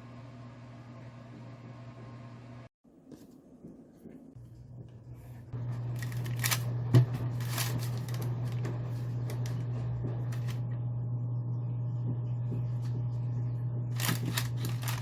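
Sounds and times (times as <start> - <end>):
low mechanical hum: 0.0 - 15.0
clicks and rattling handling: 6.0 - 6.6, 7.4 - 8.6, 14.0 - 15.0.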